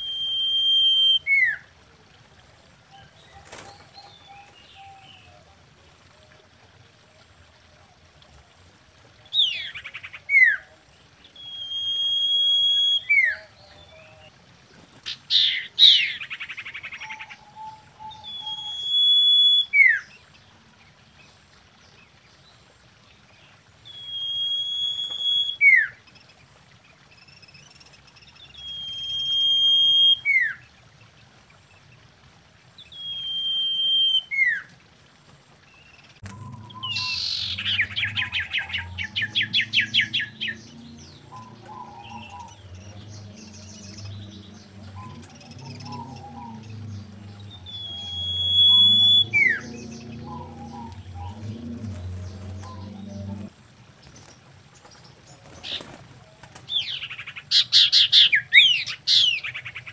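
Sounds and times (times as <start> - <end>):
bird whistling: 0.0 - 1.6, 11.4 - 13.4, 17.1 - 20.0, 23.9 - 25.9, 28.6 - 30.6, 32.9 - 34.6, 36.3 - 40.6, 47.5 - 51.4.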